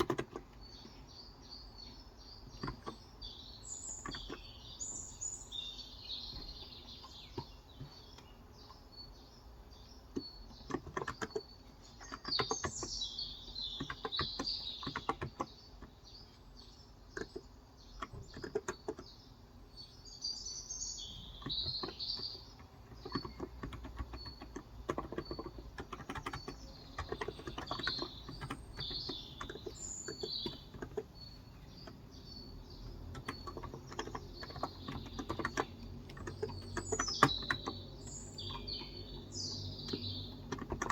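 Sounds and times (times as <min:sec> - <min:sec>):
soft keyboard keystrokes: 0:00.0 - 0:01.0, 0:10.1 - 0:13.0, 0:13.6 - 0:16.0, 0:17.1 - 0:19.1, 0:21.4 - 0:40.9
small birds chirping: 0:00.0 - 0:40.9.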